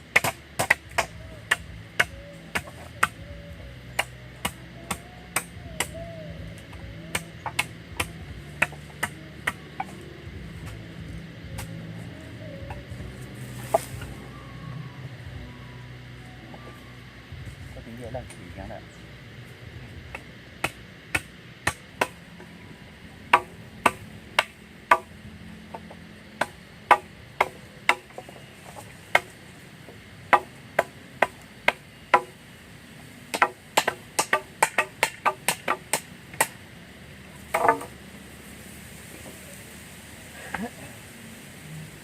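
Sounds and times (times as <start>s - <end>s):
wood chopping strokes: 0.0s - 3.3s, 3.9s - 14.2s, 20.1s - 22.2s, 23.3s - 25.1s, 25.7s - 29.4s, 30.3s - 32.4s, 33.3s - 36.6s, 37.4s - 38.0s.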